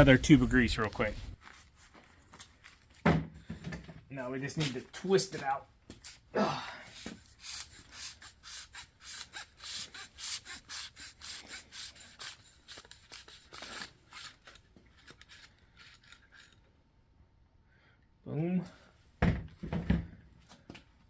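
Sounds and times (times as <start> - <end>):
grease gun barrel scraping: 12.2 - 16.7.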